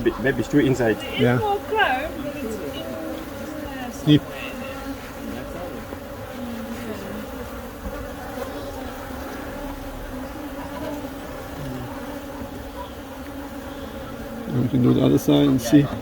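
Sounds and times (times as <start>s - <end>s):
bees buzzing: 0.0s - 16.0s
single bees flying past: 0.0s - 16.0s.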